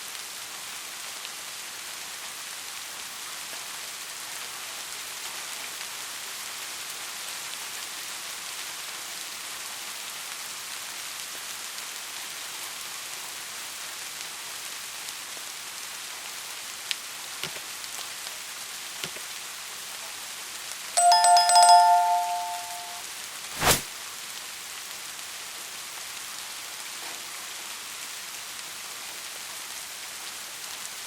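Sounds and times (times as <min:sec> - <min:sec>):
rain falling in forest: 0:00.0 - 0:31.0
loud two-tone ringing: 0:21.0 - 0:23.0.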